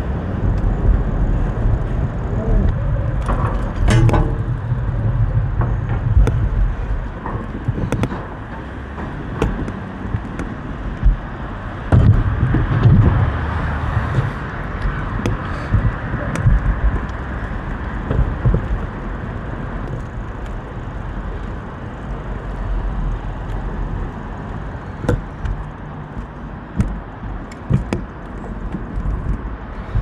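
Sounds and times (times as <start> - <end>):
e-bike riding rumble: 0.0 - 30.0
wind noise: 0.0 - 30.0
knocks and rattles: 3.1 - 17.2.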